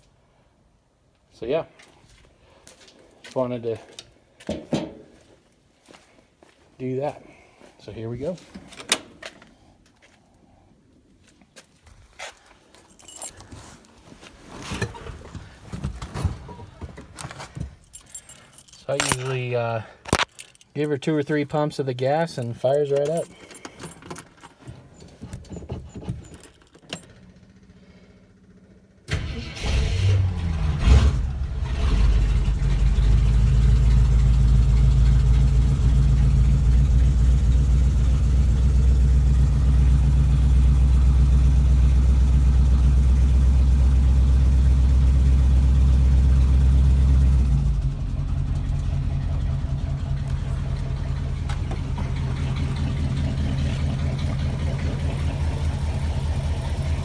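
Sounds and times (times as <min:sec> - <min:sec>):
engine cranking: 0:22.0 - 0:27.6, 0:29.1 - 0:43.4, 0:45.8 - 0:57.0
engine revving and idling: 0:27.4 - 0:57.0.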